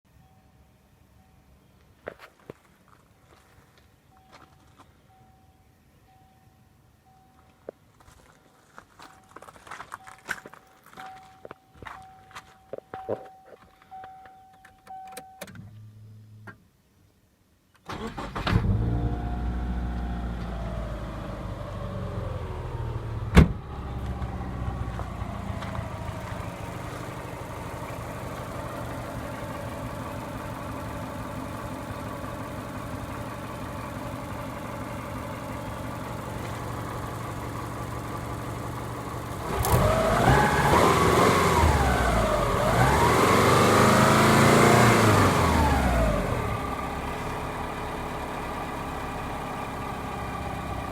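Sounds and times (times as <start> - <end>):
car engine starting and idling: 17.8 - 50.9.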